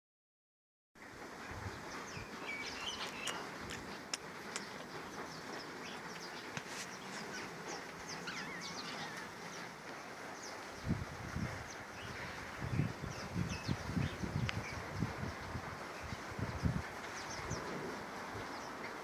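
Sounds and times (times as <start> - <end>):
steady outdoor hiss: 1.0 - 19.0
small birds chirping: 1.4 - 19.0
bird warbling call: 4.6 - 9.7.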